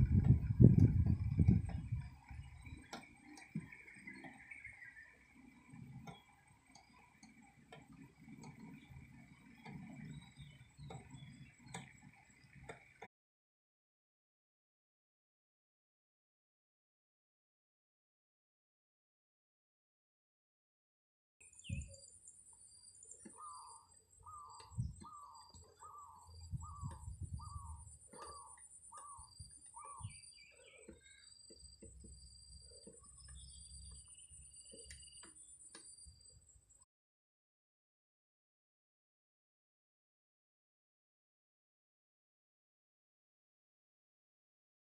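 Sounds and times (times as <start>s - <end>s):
microphone wind rumbles and thumps: 0.0s - 2.9s, 24.6s - 25.3s, 26.3s - 28.0s
faint low rumble: 0.0s - 3.7s, 24.2s - 34.9s
bird calling: 1.0s - 7.4s, 22.9s - 36.3s.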